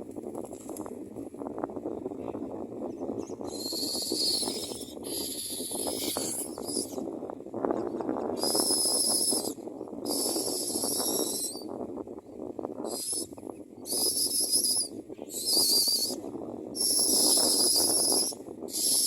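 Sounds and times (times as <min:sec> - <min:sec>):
nestlings begging calls: 0:03.2 - 0:07.0, 0:08.4 - 0:11.6, 0:13.9 - 0:16.2, 0:16.8 - 0:19.0.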